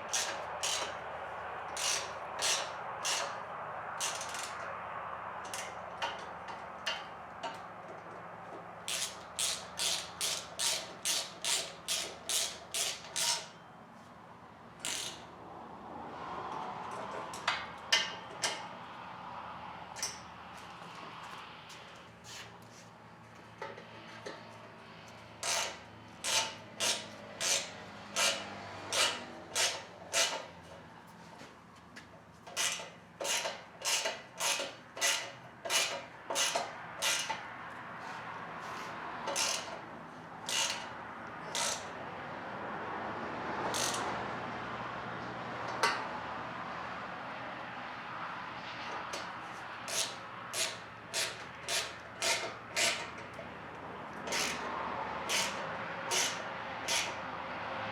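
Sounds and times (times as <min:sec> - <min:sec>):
ratchet wrench clicking: 0:00.1 - 0:01.0, 0:01.8 - 0:03.4, 0:04.0 - 0:04.6, 0:08.9 - 0:13.5, 0:14.8 - 0:15.2, 0:25.4 - 0:30.5, 0:32.5 - 0:37.4, 0:39.3 - 0:39.8, 0:40.4 - 0:41.9, 0:43.7 - 0:44.1, 0:49.9 - 0:53.3, 0:54.3 - 0:57.2.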